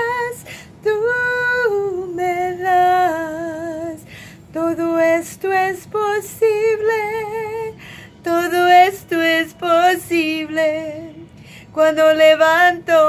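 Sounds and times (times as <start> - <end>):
woman singing: 0.0 - 13.0.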